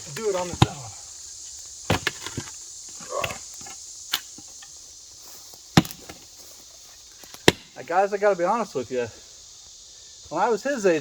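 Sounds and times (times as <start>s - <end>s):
mattock chopping into dirt: 0.0s - 1.0s, 1.9s - 4.5s, 5.7s - 6.3s, 7.2s - 7.8s
insects buzzing: 0.0s - 11.0s.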